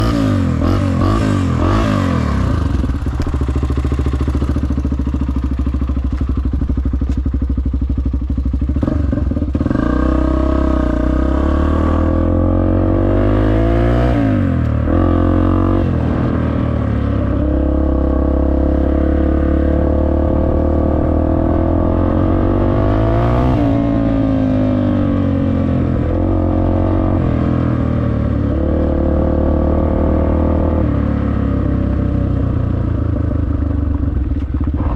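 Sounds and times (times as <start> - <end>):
dirt bike engine revving: 0.0 - 5.2.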